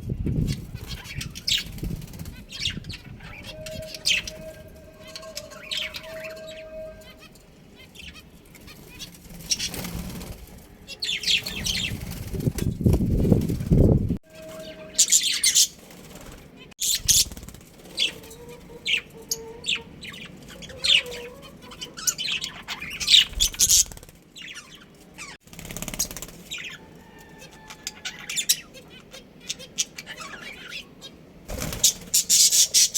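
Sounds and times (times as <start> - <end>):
wings fluttering thumps: 8.6 - 10.7, 11.3 - 14.7, 15.8 - 18.4, 25.4 - 26.6, 31.5 - 32.3
budgerigars chirping: 18.0 - 25.4, 26.5 - 32.9.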